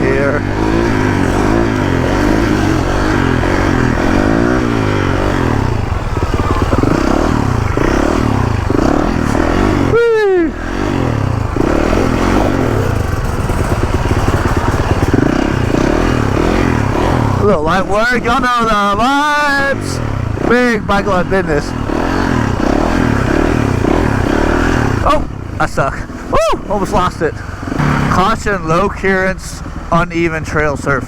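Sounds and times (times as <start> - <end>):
motorcycle engine revving: 0.0 - 31.0
rider shouting: 0.0 - 31.0.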